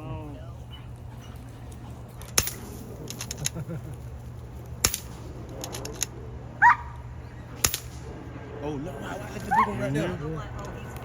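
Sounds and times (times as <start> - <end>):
air rifle shots cracking: 7.6 - 8.1.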